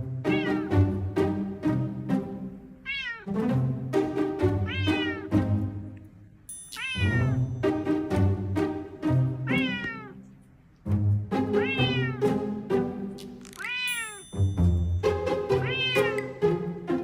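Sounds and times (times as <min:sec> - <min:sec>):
cat meowing: 0:00.3 - 0:00.7, 0:02.8 - 0:03.3, 0:04.6 - 0:05.3, 0:06.7 - 0:07.4, 0:09.4 - 0:10.2, 0:11.6 - 0:12.3, 0:13.4 - 0:14.2, 0:15.6 - 0:16.3.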